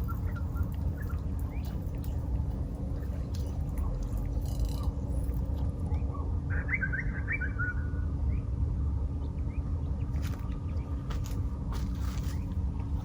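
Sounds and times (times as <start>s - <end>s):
bird chirping: 0.0s - 2.3s
steady low rumble: 0.0s - 13.0s.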